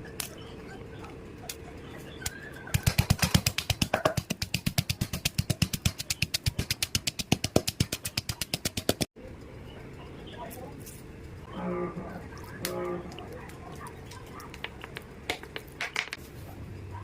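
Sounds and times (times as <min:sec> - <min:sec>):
knife chopping on cutting board: 0:02.8 - 0:09.0.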